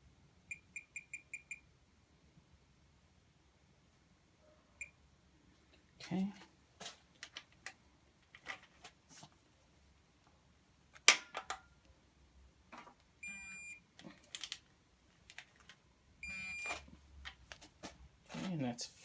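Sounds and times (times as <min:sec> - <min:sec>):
short electronic beeps: 0:00.5 - 0:01.6, 0:13.2 - 0:13.8, 0:16.2 - 0:16.7.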